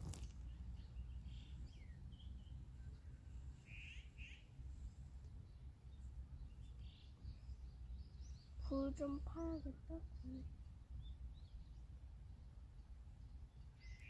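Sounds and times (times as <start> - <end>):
faint bird chirps: 0.0 - 4.6, 5.2 - 14.0
low outdoor rumble: 0.0 - 13.8.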